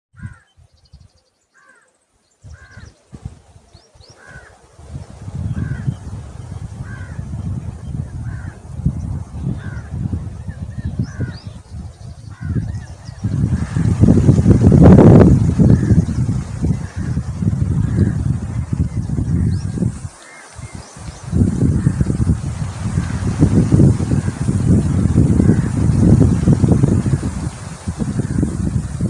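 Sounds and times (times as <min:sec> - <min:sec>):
bird calling: 0:00.2 - 0:03.1, 0:09.5 - 0:14.0.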